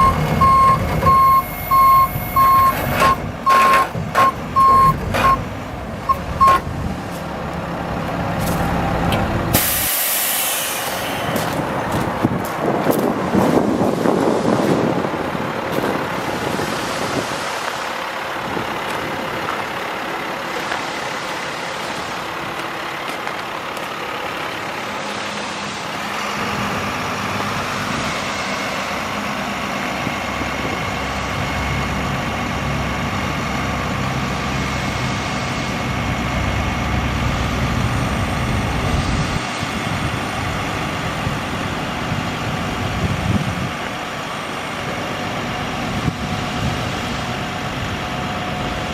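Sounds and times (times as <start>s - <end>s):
truck diesel engine running: 0.0s - 48.9s
wind on microphone: 11.4s - 17.5s, 37.9s - 40.3s, 42.6s - 43.9s.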